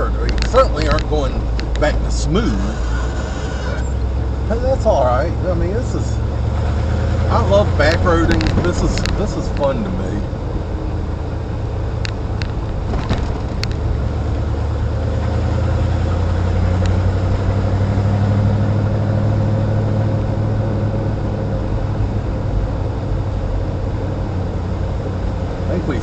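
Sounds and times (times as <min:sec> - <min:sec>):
car engine drone inside cabin: 0:00.0 - 0:26.0
sharp rattles: 0:12.0 - 0:14.4.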